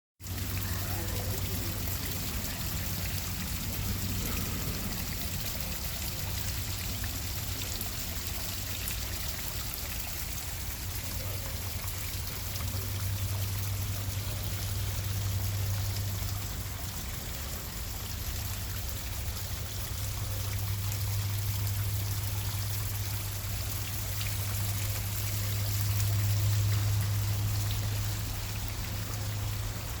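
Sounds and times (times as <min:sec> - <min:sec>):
waterfall splashing into pool: 0:00.2 - 0:30.0.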